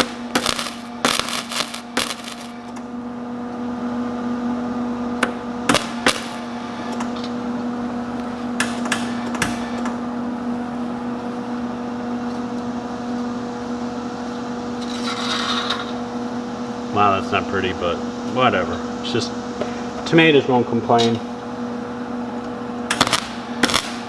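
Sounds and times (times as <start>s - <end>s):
sharp welding crackles: 0.0s - 3.0s, 5.2s - 11.3s, 13.1s - 19.2s, 22.8s - 24.0s
welder humming: 0.0s - 24.0s.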